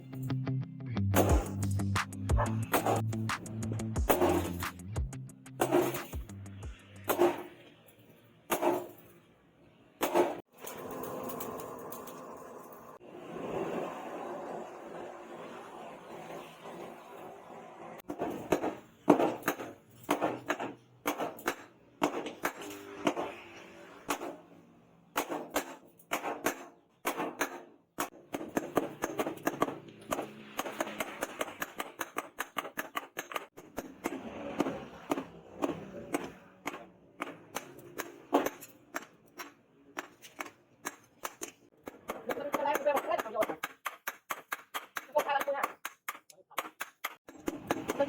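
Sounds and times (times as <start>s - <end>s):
hammer striking steel: 1.2s - 4.9s, 5.6s - 7.7s, 18.1s - 24.4s, 25.2s - 45.1s.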